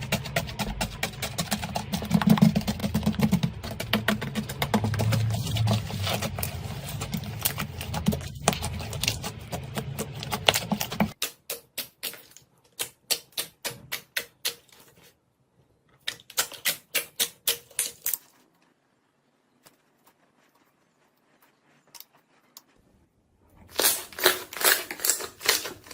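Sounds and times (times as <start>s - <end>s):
slime crackling and popping: 23.7s - 25.9s.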